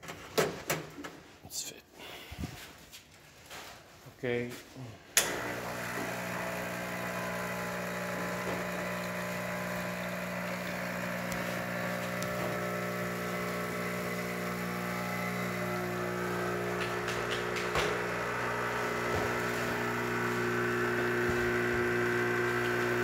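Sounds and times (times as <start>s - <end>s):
espresso machine pump buzzing: 5.2s - 23.0s.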